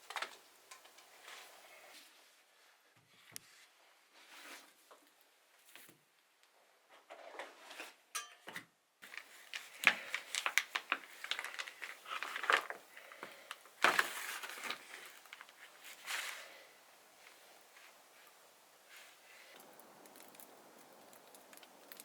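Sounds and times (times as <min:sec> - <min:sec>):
rustling handling noise: 0:09.0 - 0:22.0.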